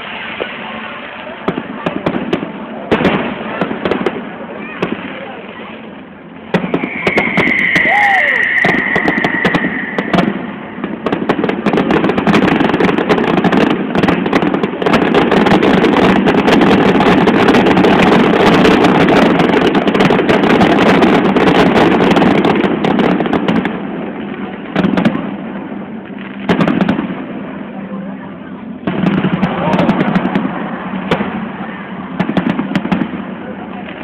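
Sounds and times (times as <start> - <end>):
fireworks bangs and crackles: 0.0 - 34.0
firework whistle: 6.4 - 14.2.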